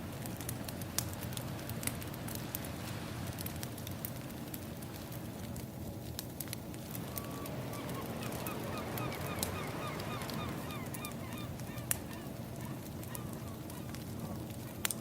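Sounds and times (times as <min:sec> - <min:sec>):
wood fire crackling: 0:00.0 - 0:15.0
low wash: 0:06.5 - 0:15.0
flock of birds calling: 0:06.9 - 0:15.0.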